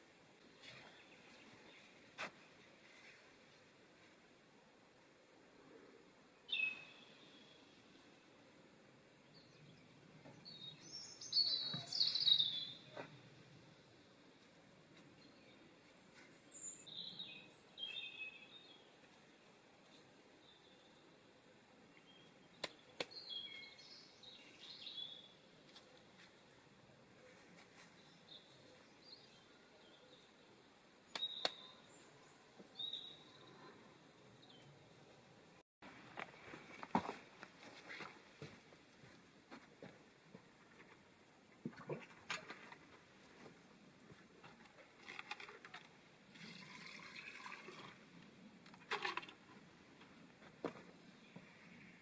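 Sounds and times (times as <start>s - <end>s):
songbird chirping: 0.4s - 4.1s, 5.6s - 35.6s, 49.5s - 52.0s
high bird chirps: 10.7s - 12.9s.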